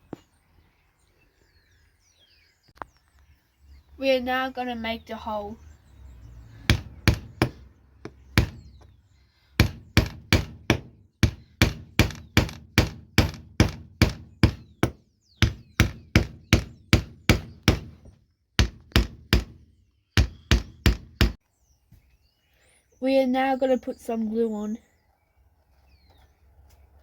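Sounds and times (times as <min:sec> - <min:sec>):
hammer strikes: 0:06.7 - 0:08.8, 0:09.6 - 0:18.0, 0:20.2 - 0:21.4.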